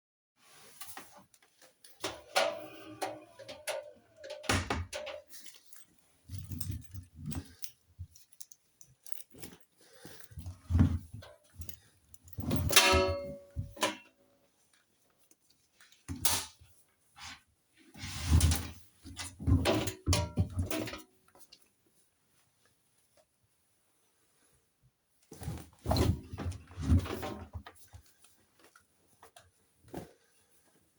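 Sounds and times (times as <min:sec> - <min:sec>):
washing machine door and control clicks: 0:02.1 - 0:05.2.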